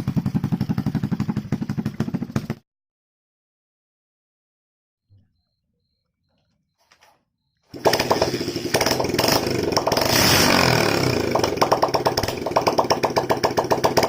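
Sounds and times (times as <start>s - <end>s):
motorcycle engine pulsing: 0.0s - 2.6s, 7.5s - 14.0s.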